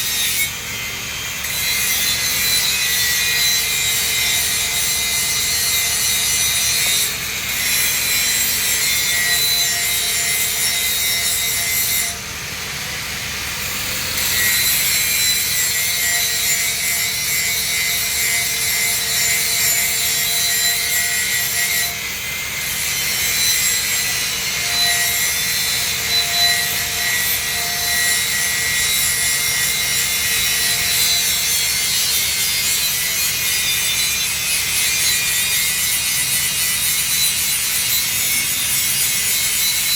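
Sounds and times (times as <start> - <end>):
welding arc hissing and crackling: 0.1 - 21.1.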